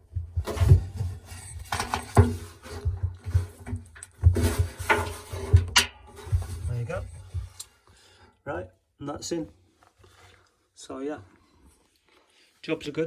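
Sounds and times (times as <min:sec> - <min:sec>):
plastic scraping in drum: 0:00.1 - 0:07.6.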